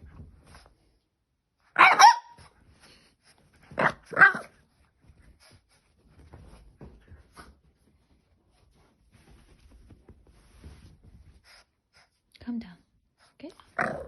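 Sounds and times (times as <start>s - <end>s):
puppy barking: 1.7s - 2.5s, 3.8s - 4.5s.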